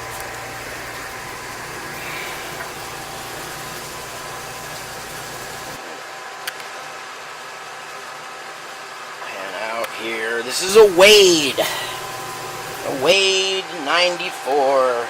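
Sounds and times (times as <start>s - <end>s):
lathe running with whining tones: 0.0s - 6.1s, 10.6s - 15.0s.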